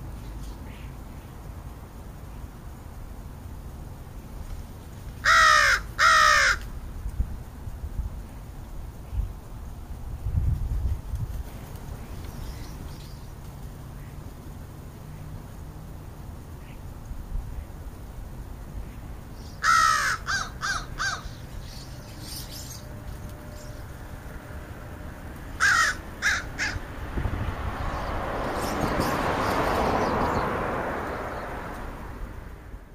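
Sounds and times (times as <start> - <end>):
crows cawing: 5.2 - 6.7, 19.6 - 21.4, 25.5 - 26.9
rushing noise: 20.0 - 32.9.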